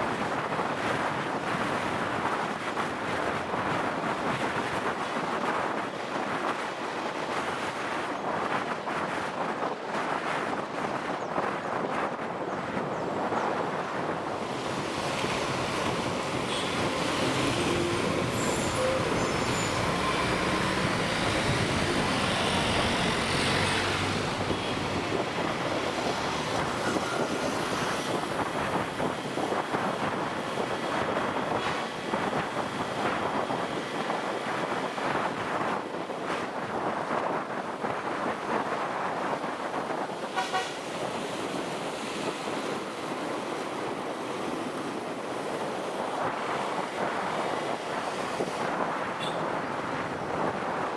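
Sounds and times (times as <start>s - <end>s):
motorcycle road noise: 0.0s - 50.9s
wind on microphone: 0.0s - 50.9s
heavy vehicle noise: 12.6s - 50.9s.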